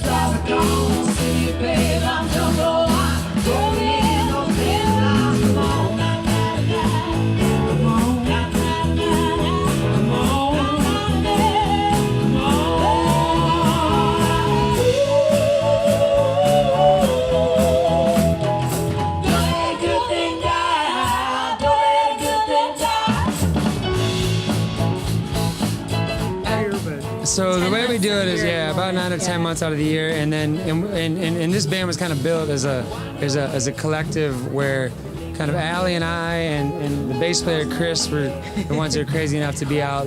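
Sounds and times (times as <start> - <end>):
person singing with vibrato: 0.0 - 23.4
roots-rock band playing: 0.0 - 40.0.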